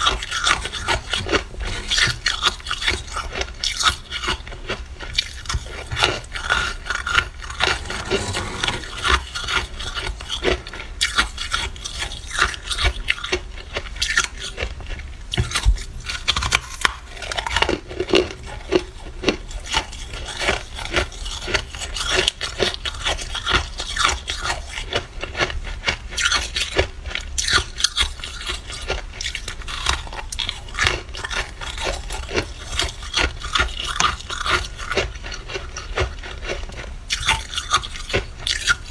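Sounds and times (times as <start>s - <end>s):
freezer frost scraping: 5.3s - 11.8s.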